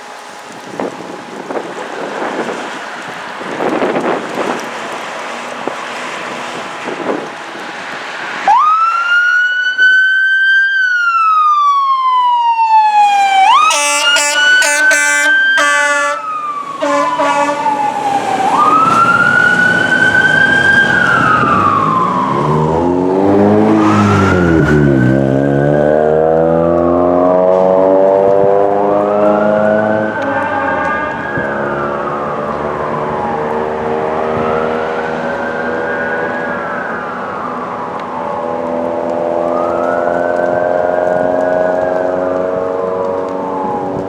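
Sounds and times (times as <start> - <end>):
wind noise: 0.0 - 8.7, 16.6 - 26.6, 27.2 - 44.0
fire engine siren wailing: 0.0 - 44.0
air horn blasts: 13.5 - 17.8
diesel engine accelerating: 16.6 - 44.0.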